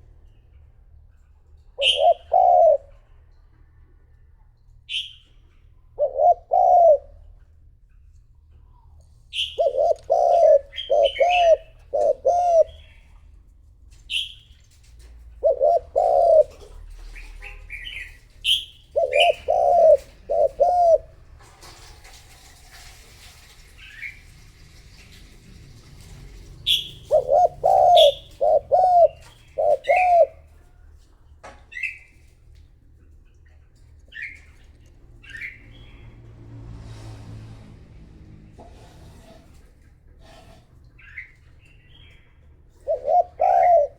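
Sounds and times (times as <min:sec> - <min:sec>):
dove cooing: 0:01.8 - 0:03.2, 0:05.9 - 0:07.5, 0:09.3 - 0:13.2, 0:15.2 - 0:21.3, 0:26.0 - 0:30.8, 0:42.7 - 0:43.9
small birds chirping: 0:07.9 - 0:13.4, 0:14.0 - 0:14.7, 0:15.4 - 0:21.0, 0:26.6 - 0:30.5.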